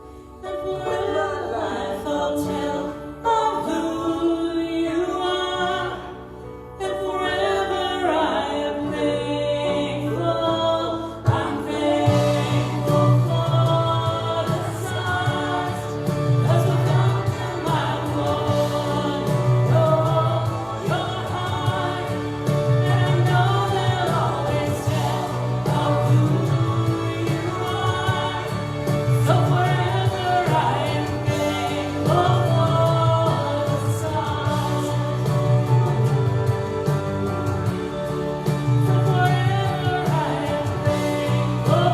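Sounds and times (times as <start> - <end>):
voices singing: 0.4 - 41.9
band with pulsing bass: 8.8 - 41.9.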